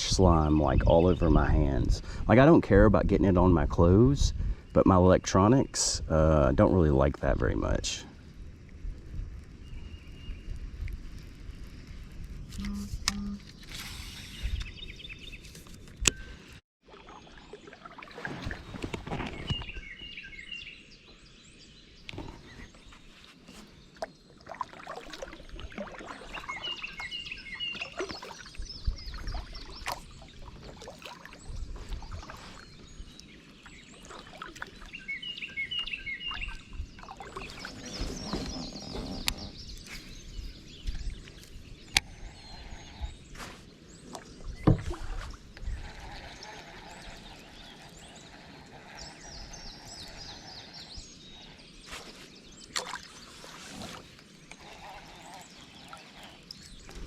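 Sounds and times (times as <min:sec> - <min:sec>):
wind rumble on microphone: 0:00.0 - 0:05.2, 0:05.8 - 0:16.4, 0:28.5 - 0:30.8, 0:35.0 - 0:51.6
songbird chirping: 0:17.0 - 0:57.0
kayak knocks and splashes: 0:44.1 - 0:45.4.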